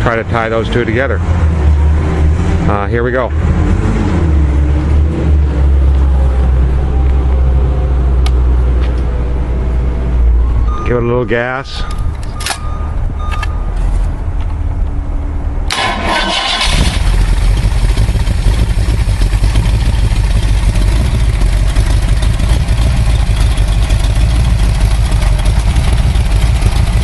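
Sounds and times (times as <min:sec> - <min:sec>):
engine running: 0:00.0 - 0:10.8, 0:11.8 - 0:27.0
engine cranking: 0:15.7 - 0:27.0.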